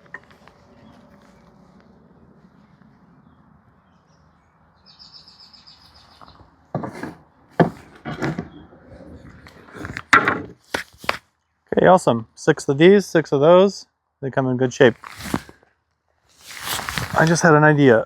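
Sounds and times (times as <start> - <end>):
wooden boards knocking and clattering: 6.7 - 11.2.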